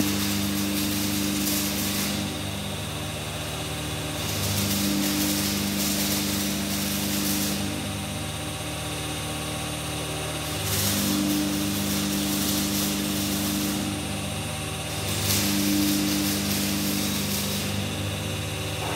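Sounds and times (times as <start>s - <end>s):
hydraulic motor and pump running: 0.0s - 18.9s
hiss of oil flow: 4.0s - 7.9s, 10.4s - 14.2s, 14.8s - 18.9s.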